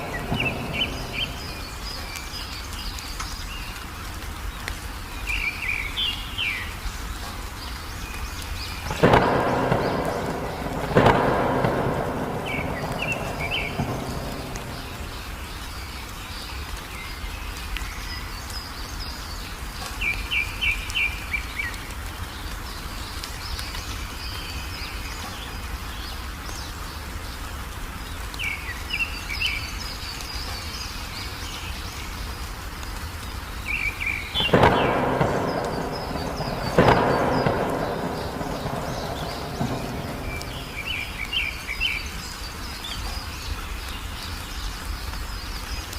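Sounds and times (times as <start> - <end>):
loud thunderclap: 0.0 - 2.1, 8.8 - 15.6, 34.3 - 41.6
small birds chirping: 0.0 - 45.9
steady rain: 0.0 - 45.9.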